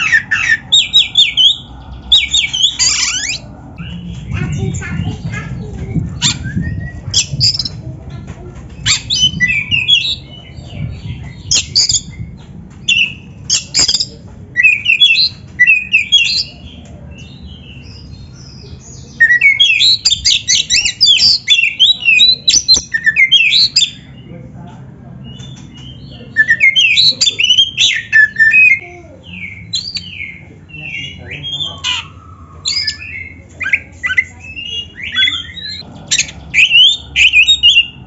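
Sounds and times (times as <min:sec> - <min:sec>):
bird singing whistled phrases: 0:26.3 - 0:35.8.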